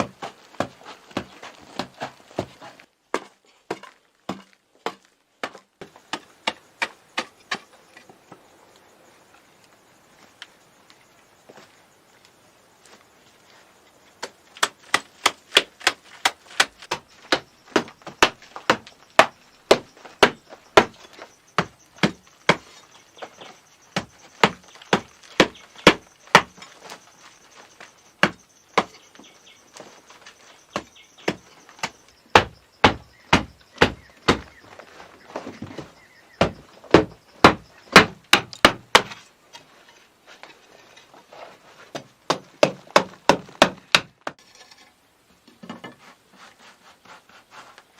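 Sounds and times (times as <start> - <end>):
tool striking wood: 30.7 - 34.6, 36.3 - 39.2.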